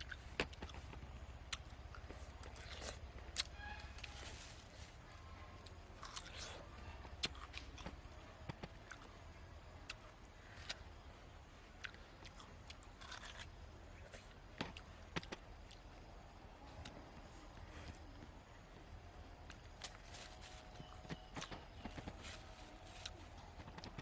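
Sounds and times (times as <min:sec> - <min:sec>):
light crunches: 0:00.1 - 0:06.6, 0:19.4 - 0:24.0.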